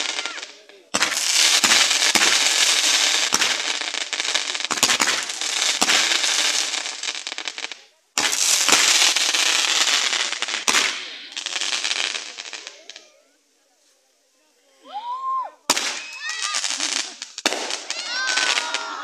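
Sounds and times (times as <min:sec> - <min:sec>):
sharp pops: 0:00.0 - 0:06.2
fireworks fountain hissing and crackling: 0:00.0 - 0:19.0.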